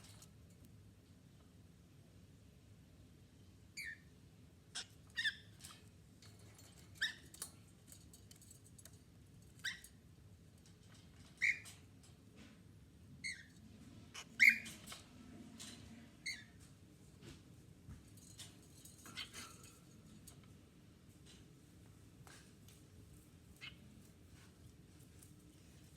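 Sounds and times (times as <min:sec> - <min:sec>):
cockatiels chirping: 0:14.2 - 0:14.9.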